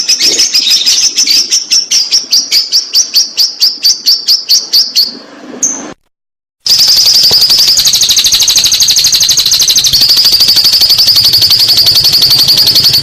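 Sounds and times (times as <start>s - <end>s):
lovebird chattering trill: 6.7s - 13.0s.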